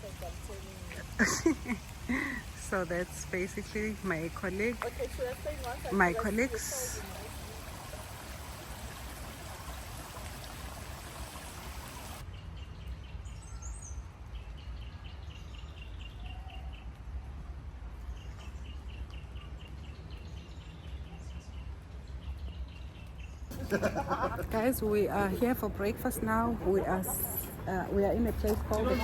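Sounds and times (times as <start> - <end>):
stream water rushing: 0.0 - 12.2.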